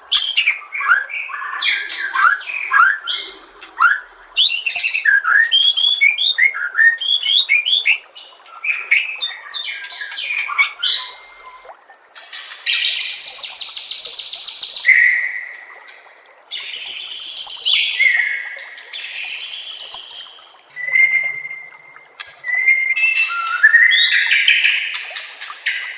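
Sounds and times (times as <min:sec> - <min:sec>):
bird chirping and whistling: 0:00.1 - 0:11.6, 0:19.0 - 0:24.9.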